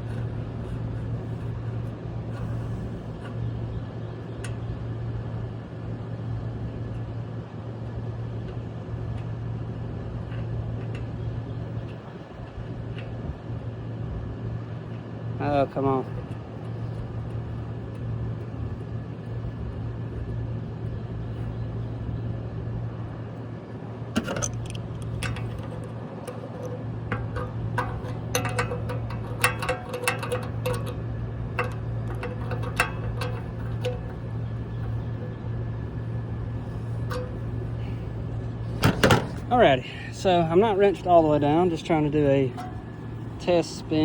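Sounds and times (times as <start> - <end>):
steady low hum: 0.0 - 44.0
metal clinks and taps: 24.2 - 35.0, 37.0 - 37.9.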